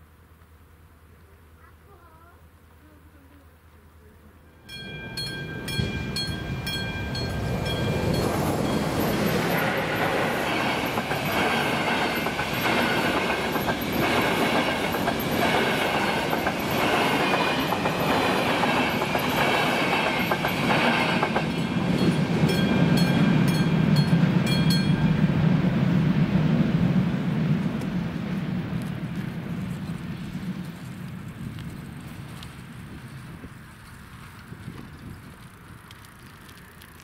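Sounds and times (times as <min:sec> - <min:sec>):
low train rumble: 0:01.5 - 0:37.0
train wheels clattering over joints: 0:05.3 - 0:24.9.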